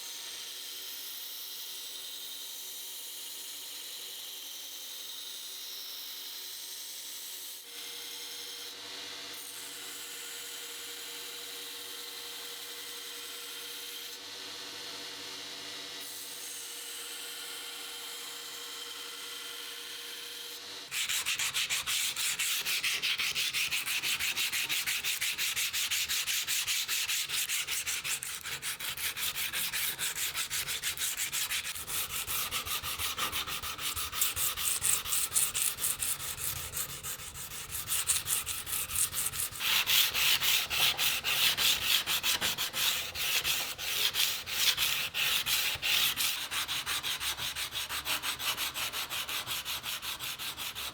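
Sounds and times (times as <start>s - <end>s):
sandpaper rubbing on steel: 20.9s - 50.9s.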